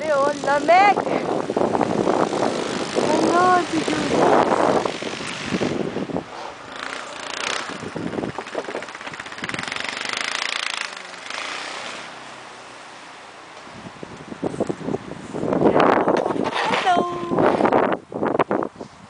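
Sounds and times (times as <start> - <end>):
snow hissing rushes: 0.3 - 7.8
snowblower engine running: 6.6 - 12.6.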